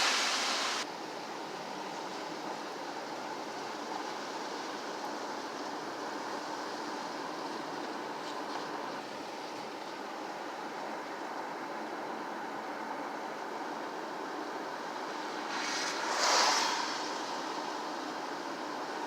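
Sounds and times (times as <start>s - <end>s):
rushing noise: 0.0s - 0.8s, 14.3s - 19.0s
outdoor background noise: 0.0s - 19.0s.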